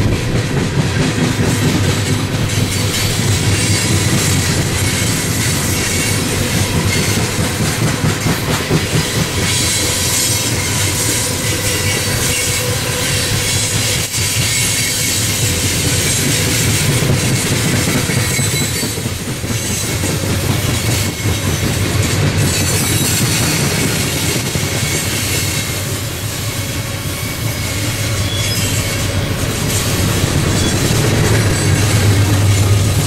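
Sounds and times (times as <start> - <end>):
wheels clacking over rail joints: 0.0 - 26.0
steel wheels rumbling on rail: 0.0 - 33.0
high wheel squeals: 18.2 - 19.0, 22.4 - 33.0.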